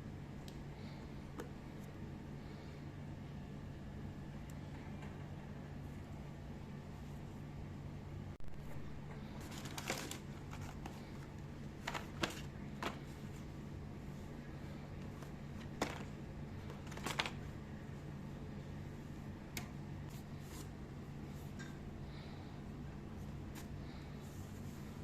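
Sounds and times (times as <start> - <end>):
steady low hum: 0.0 - 25.0
packaging rustling: 9.3 - 13.3, 15.1 - 17.5.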